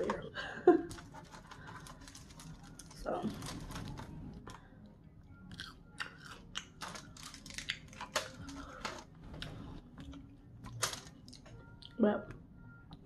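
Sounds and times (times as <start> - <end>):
crunchy chewing of fried food: 5.4 - 12.0.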